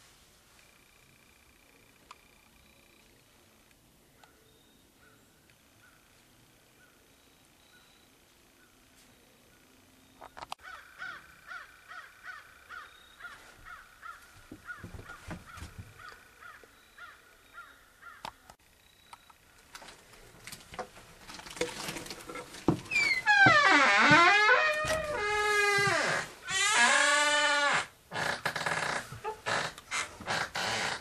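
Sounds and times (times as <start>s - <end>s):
handling clatter and rustle: 19.6s - 23.5s.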